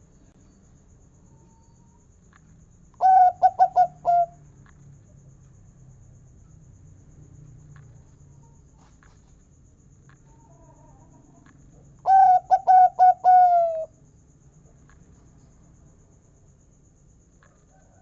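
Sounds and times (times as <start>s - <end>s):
faint low hum: 0.0s - 18.0s
dove cooing: 3.0s - 4.4s, 12.0s - 13.9s.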